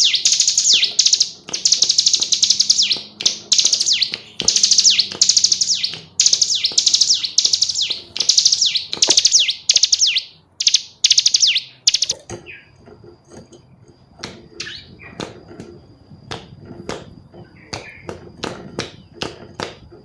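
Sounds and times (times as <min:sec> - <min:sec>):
bird chattering trills: 0:00.0 - 0:12.8, 0:14.6 - 0:15.2
faint bird chirps: 0:00.0 - 0:12.8, 0:13.4 - 0:16.2.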